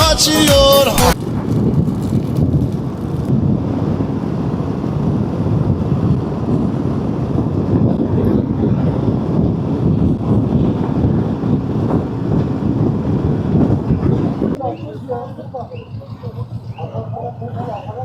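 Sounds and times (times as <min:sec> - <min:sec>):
wind buffeting microphone: 0:01.1 - 0:18.0.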